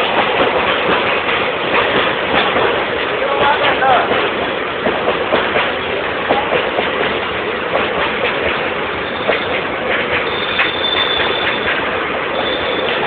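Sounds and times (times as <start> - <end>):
sharp clicks and clanks: 0.0 - 12.0
train wheels rumbling on rails: 0.0 - 13.0
high squeal: 9.0 - 9.6, 10.2 - 13.0.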